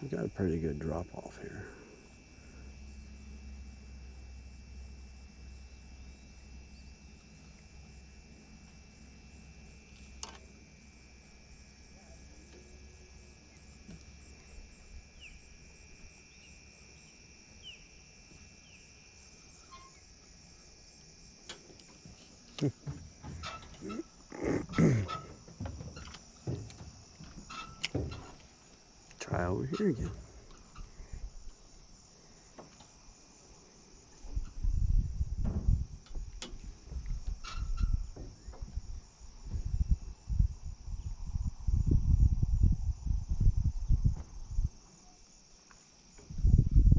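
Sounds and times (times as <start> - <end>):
insects trilling: 0.0 - 46.9
wind gusting on microphone: 34.3 - 44.8, 46.2 - 46.9.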